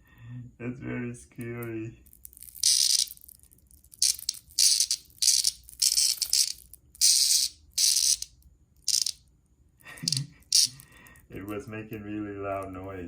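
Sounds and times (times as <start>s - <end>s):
cicada buzzing harshly: 4.0s - 8.2s, 8.9s - 9.2s, 10.1s - 10.8s.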